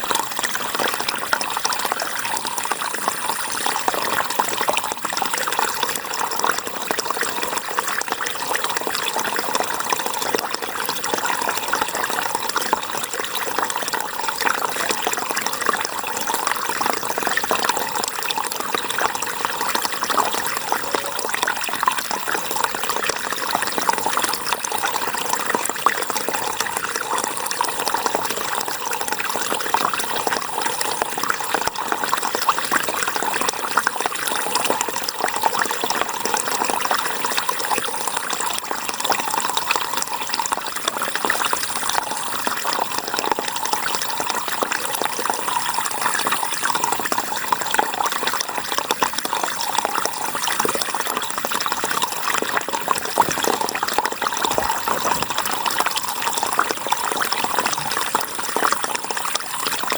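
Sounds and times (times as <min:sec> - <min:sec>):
river water flowing and splashing: 0:52.0 - 0:59.1.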